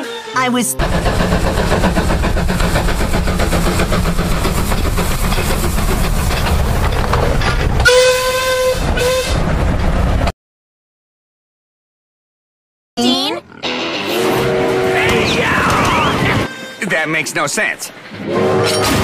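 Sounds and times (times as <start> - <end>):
train clattering rumble: 0.8 - 10.3, 14.9 - 16.5
train whistle blowing: 7.8 - 9.4, 13.9 - 15.3, 18.2 - 19.0.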